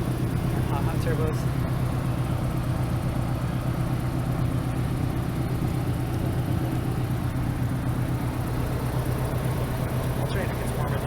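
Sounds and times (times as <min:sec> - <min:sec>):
rotary engine idling: 0:00.0 - 0:11.0.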